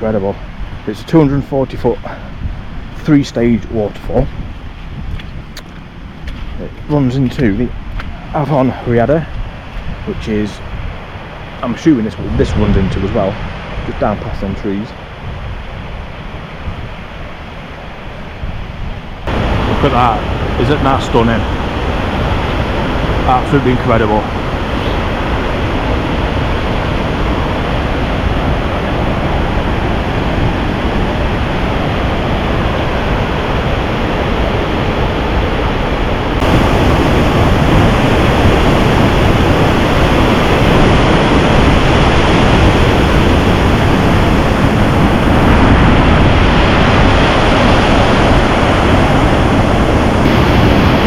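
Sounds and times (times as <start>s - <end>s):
waterfall rushing: 19.2s - 51.0s.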